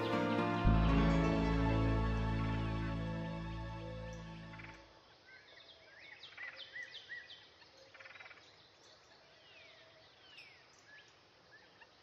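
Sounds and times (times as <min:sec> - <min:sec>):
birds chirping: 0:00.0 - 0:04.8.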